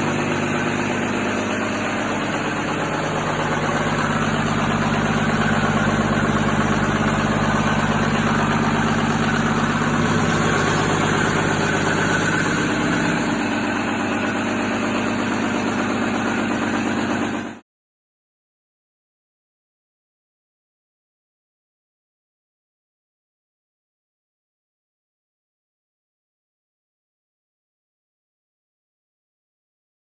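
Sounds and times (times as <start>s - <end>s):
diesel engine running: 0.0s - 17.6s.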